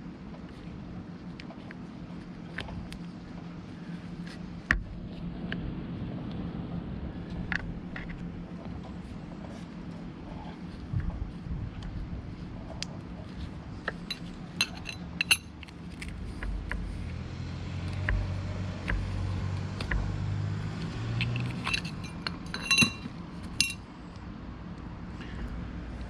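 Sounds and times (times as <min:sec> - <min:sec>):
low background hum: 0:00.0 - 0:26.0
metal tools clinking: 0:13.9 - 0:15.5, 0:21.2 - 0:23.8.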